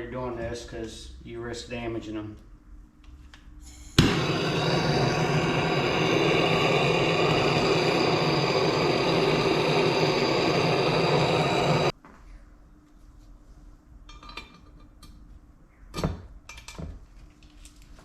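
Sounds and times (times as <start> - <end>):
heat gun running: 3.7 - 11.9.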